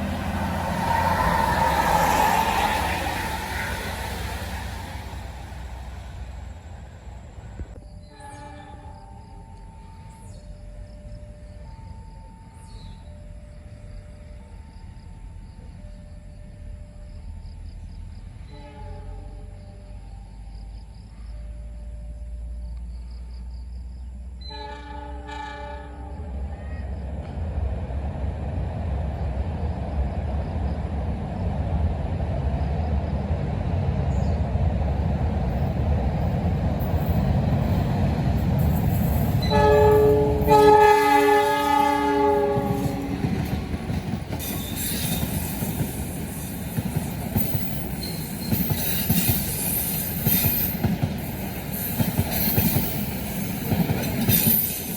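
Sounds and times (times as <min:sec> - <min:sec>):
tyres hissing on wet road: 0:00.0 - 0:07.6
bus engine rumble: 0:00.0 - 0:08.0, 0:26.1 - 0:52.2
bus air horn blasts: 0:24.5 - 0:26.2, 0:39.4 - 0:43.8.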